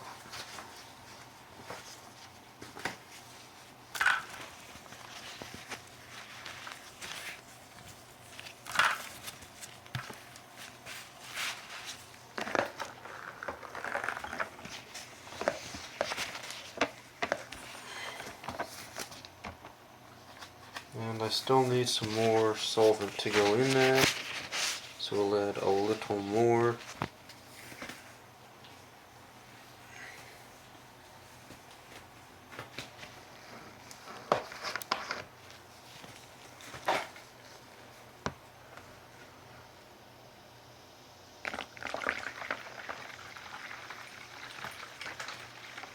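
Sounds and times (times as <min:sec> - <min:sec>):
paper towels rustling: 0:00.0 - 0:19.4, 0:20.2 - 0:29.8.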